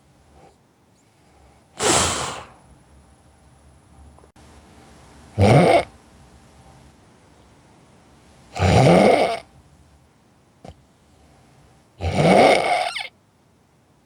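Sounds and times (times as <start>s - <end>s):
person snoring: 1.8s - 2.6s.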